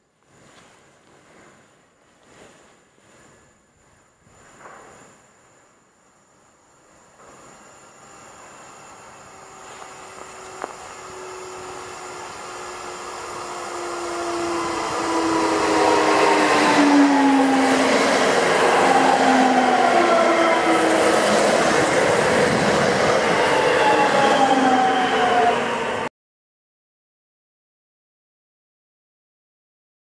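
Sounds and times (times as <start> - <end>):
electric train passing on rails: 4.4 - 26.1
whining tones sliding down: 8.0 - 26.1.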